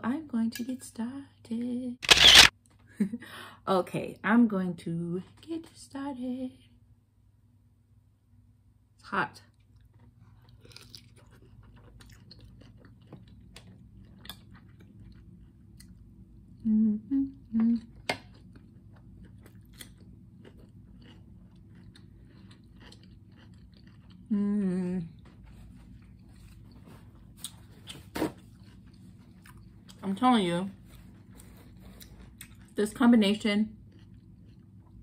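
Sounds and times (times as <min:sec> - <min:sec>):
sharp click: 0:02.0 - 0:02.5
wet chewing: 0:09.6 - 0:16.0, 0:17.8 - 0:24.3, 0:30.8 - 0:32.8
person humming mm: 0:16.6 - 0:18.0.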